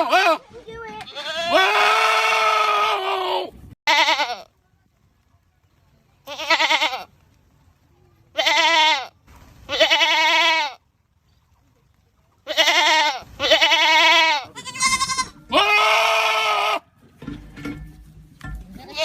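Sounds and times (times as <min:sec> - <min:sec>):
goat bleating loudly: 0:00.0 - 0:00.4, 0:01.0 - 0:04.5, 0:06.2 - 0:07.1, 0:08.3 - 0:10.8, 0:12.4 - 0:16.9, 0:18.8 - 0:19.0.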